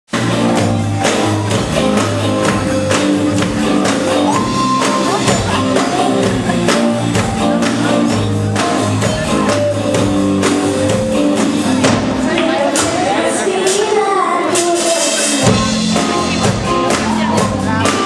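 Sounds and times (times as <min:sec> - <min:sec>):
electric guitar: 0:00.1 - 0:13.2, 0:14.6 - 0:18.0
bass guitar: 0:00.1 - 0:13.4, 0:14.6 - 0:18.0
drum beat: 0:00.1 - 0:13.8, 0:14.6 - 0:18.0.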